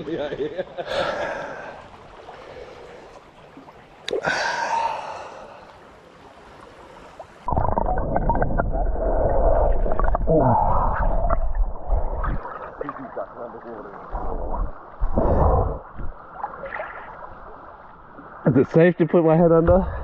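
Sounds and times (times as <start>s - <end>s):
underwater gurgling and sloshing: 0.0s - 20.0s
water splash: 6.1s - 17.8s.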